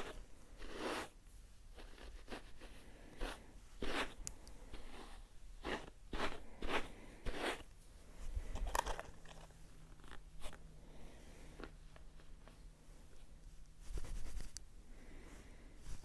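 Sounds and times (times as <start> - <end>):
close scratching strokes: 0.0 - 1.2, 1.8 - 7.7, 13.8 - 14.6.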